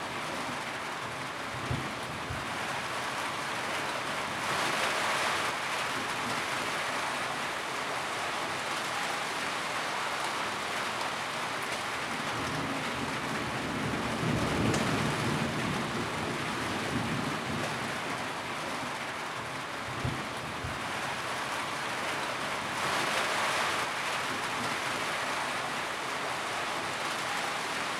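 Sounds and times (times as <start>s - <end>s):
rain drumming on a tin roof: 0.0s - 27.9s.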